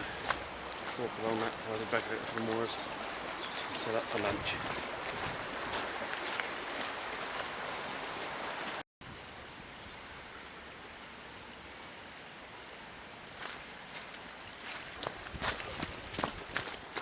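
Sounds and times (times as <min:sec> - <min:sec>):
soft footsteps: 0:00.0 - 0:08.1, 0:13.4 - 0:17.0
rain falling on woodland: 0:00.0 - 0:17.0.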